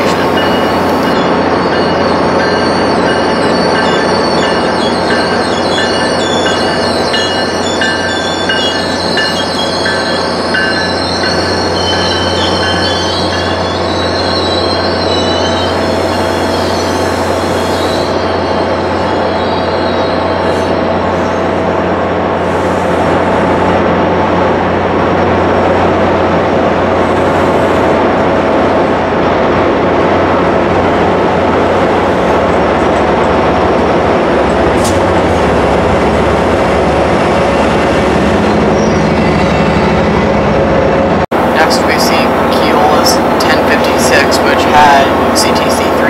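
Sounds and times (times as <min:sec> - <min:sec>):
wheel squeal: 0:00.0 - 0:21.4
diesel locomotive engine drone: 0:00.0 - 0:46.0.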